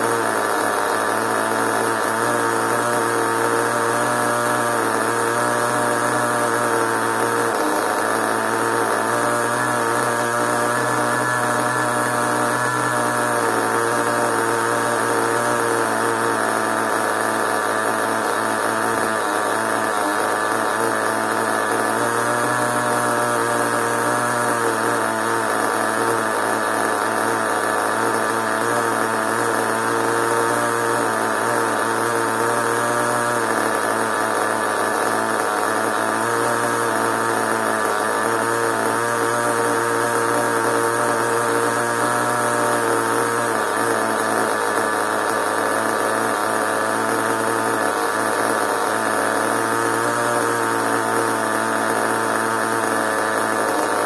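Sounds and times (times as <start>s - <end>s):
small nitro engine running: 0.0s - 54.0s.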